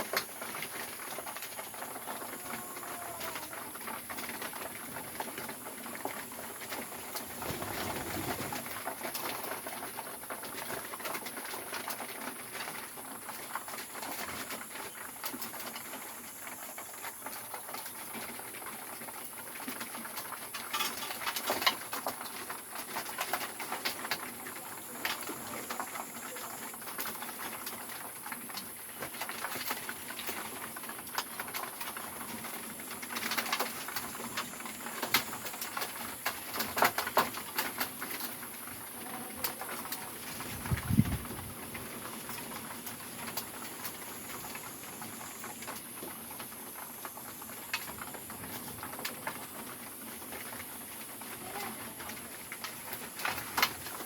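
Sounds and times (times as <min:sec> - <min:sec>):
pigeons cooing: 0:00.1 - 0:09.9.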